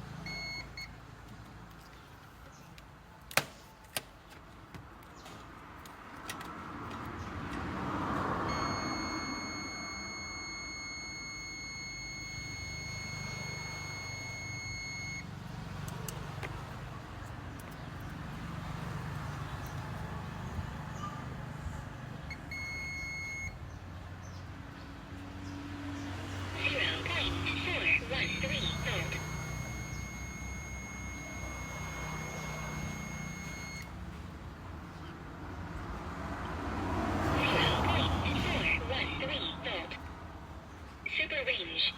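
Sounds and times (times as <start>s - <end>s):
electronic beeper beeping: 27.6s - 33.8s.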